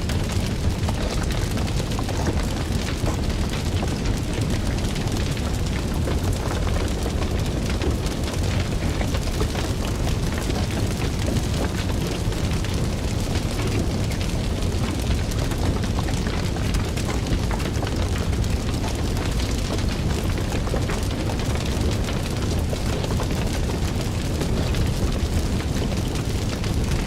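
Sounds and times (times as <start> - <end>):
fire crackling and roaring: 0.0 - 27.0.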